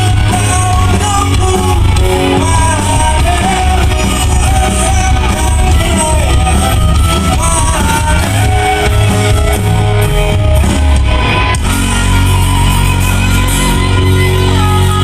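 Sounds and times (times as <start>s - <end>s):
person singing: 0.0s - 9.3s
live pop-rock band playing: 0.0s - 15.0s.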